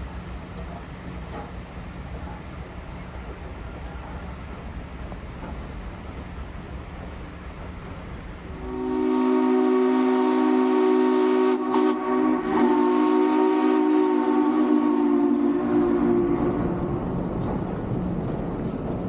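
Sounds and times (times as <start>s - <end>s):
steam locomotive chime whistle: 8.6s - 16.8s.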